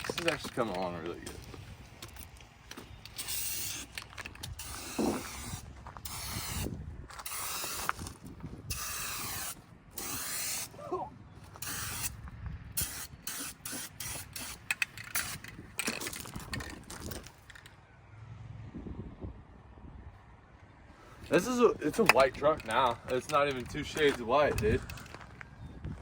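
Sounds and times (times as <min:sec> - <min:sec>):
spray paint can hissing: 0:03.1 - 0:08.0, 0:08.7 - 0:10.8, 0:11.6 - 0:12.2, 0:12.8 - 0:15.5.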